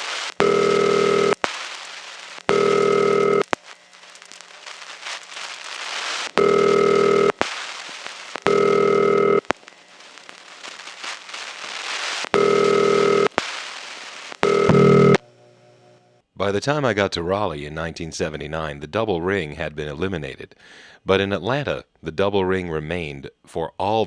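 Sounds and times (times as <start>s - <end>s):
crackly line noise: 0.0s - 16.2s
buzzy telephone ringback: 0.4s - 1.4s, 2.5s - 3.4s, 6.4s - 7.3s, 8.5s - 9.4s, 12.4s - 13.3s, 14.4s - 16.2s.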